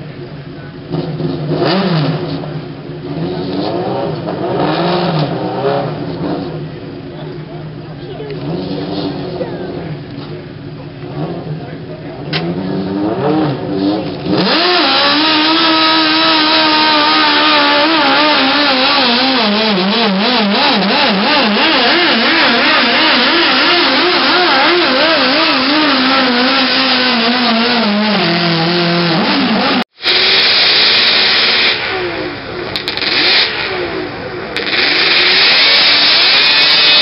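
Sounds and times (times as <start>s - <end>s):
tractor engine at full throttle: 0.0s - 37.0s.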